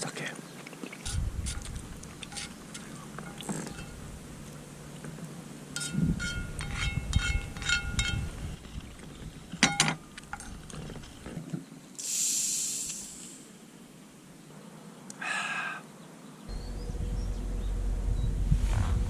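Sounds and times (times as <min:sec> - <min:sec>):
metal clinking and rattling: 0:01.1 - 0:04.1, 0:05.8 - 0:08.5
short hiss: 0:12.0 - 0:13.5.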